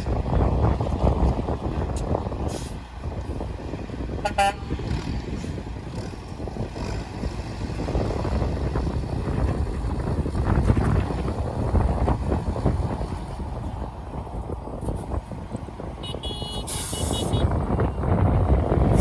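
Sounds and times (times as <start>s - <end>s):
heavy vehicle engine running: 0.0s - 19.0s
short horn toot: 16.0s - 17.5s.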